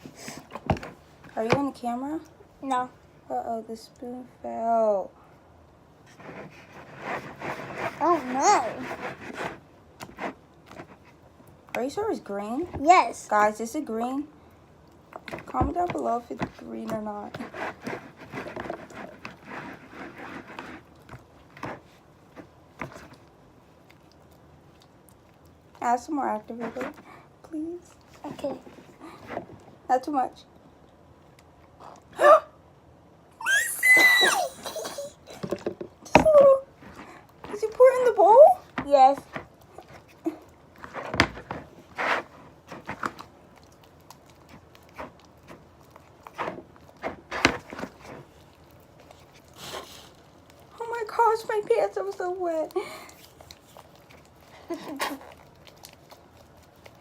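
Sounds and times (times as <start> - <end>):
slime squelching and scraping: 6.0 - 14.2, 15.0 - 30.3, 36.2 - 57.0
soft rustle: 6.0 - 30.6, 36.4 - 57.0.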